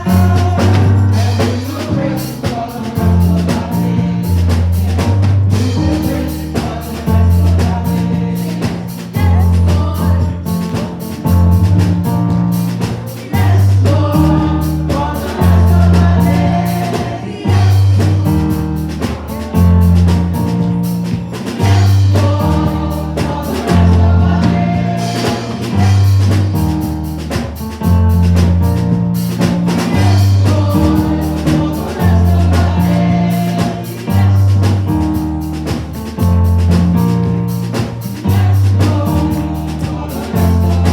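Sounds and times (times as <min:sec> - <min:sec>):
deep bass line: 0:00.0 - 0:40.9
drum kit: 0:00.0 - 0:40.9
gospel singing: 0:00.0 - 0:40.9.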